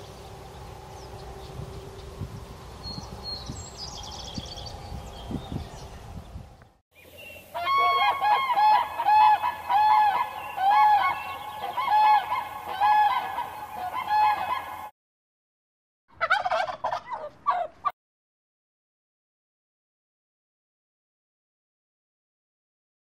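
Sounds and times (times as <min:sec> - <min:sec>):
rapid bird calls: 0:07.0 - 0:14.9
crane honking calls: 0:07.5 - 0:14.9.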